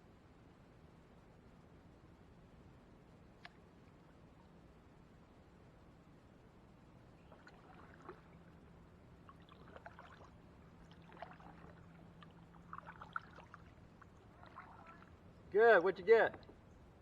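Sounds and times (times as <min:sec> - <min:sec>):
low steady hum: 0:00.0 - 0:17.0
water drips and laps against hull: 0:07.2 - 0:15.3.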